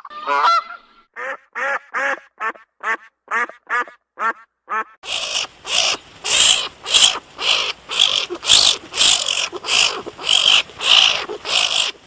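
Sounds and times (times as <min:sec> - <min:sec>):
skunk hissing: 0:05.0 - 0:12.0.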